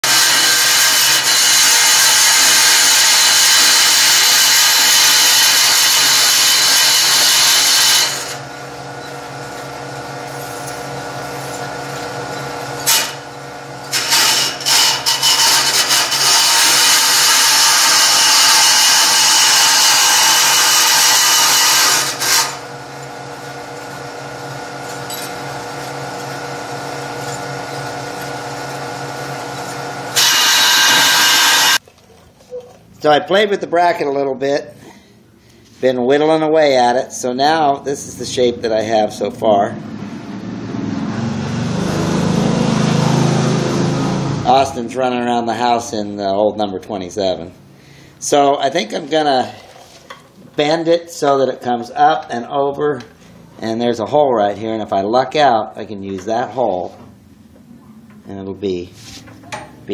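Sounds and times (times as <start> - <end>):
electric grinder grinding steel: 0.0 - 31.8.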